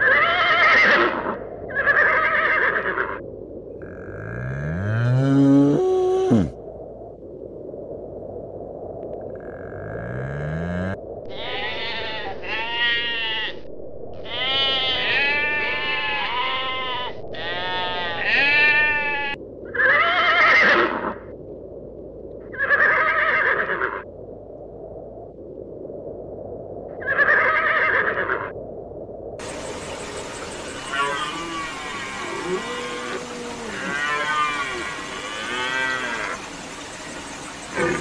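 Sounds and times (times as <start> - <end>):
sheep bleating: 11.3 - 13.5, 30.9 - 36.4.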